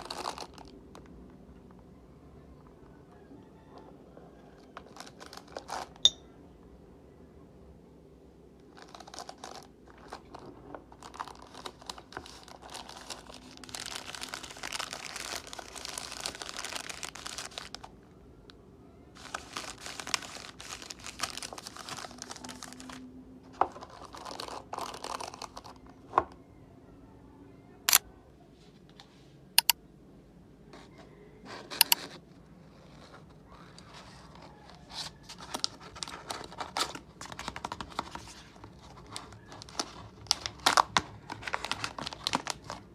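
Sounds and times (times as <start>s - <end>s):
plastic packaging crinkling: 0.0s - 1.2s, 4.8s - 6.0s, 8.6s - 18.0s, 19.1s - 25.9s, 35.4s - 42.9s.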